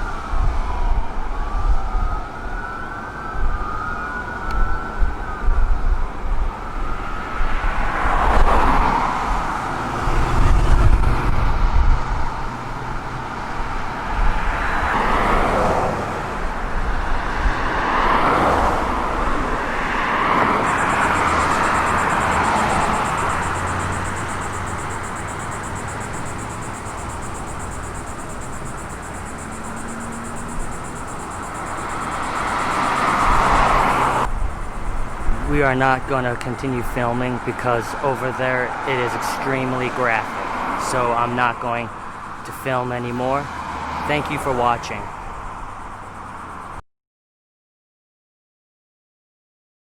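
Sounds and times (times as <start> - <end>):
emergency siren: 0.0 - 11.4, 12.0 - 35.4
vehicles driving past: 0.0 - 46.8.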